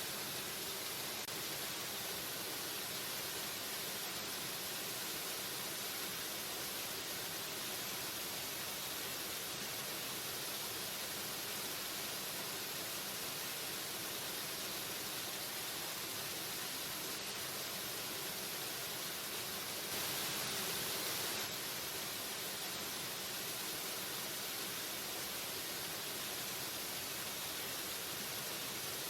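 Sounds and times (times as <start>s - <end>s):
waterfall roaring: 14.9s - 28.8s.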